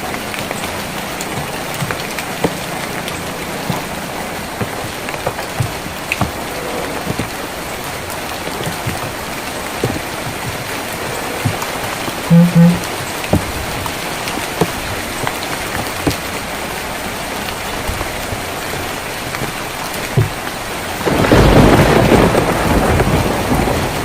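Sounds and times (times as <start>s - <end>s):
rain on a tin roof: 0.0s - 24.0s
drops striking sharply: 12.3s - 12.9s.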